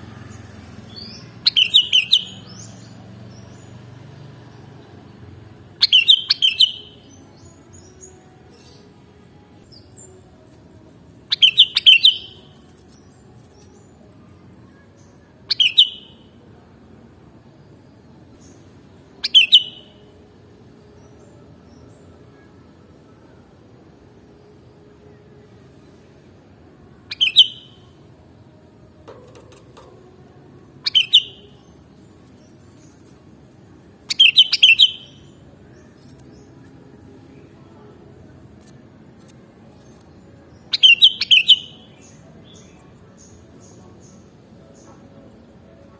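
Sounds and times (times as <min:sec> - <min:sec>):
bulbul singing: 0:00.3 - 0:03.7, 0:05.7 - 0:14.0, 0:15.0 - 0:16.4, 0:19.2 - 0:20.0, 0:27.0 - 0:28.2, 0:28.8 - 0:44.9
bulbul calling: 0:01.5 - 0:02.4, 0:05.8 - 0:06.9, 0:11.3 - 0:12.5, 0:27.1 - 0:27.7, 0:29.1 - 0:33.1, 0:34.1 - 0:35.3, 0:40.7 - 0:41.8.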